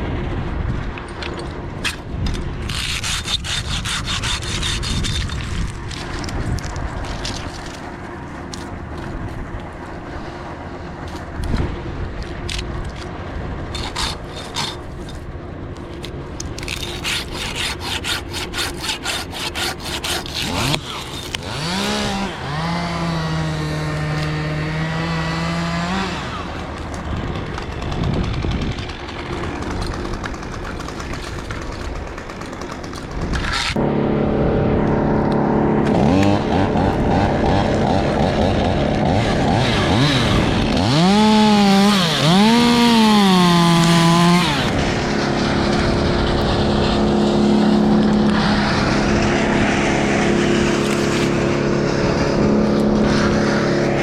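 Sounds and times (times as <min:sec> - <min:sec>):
sawing noises: 0:01.2 - 0:34.3, 0:35.0 - 0:54.0
small engine running: 0:15.8 - 0:54.0.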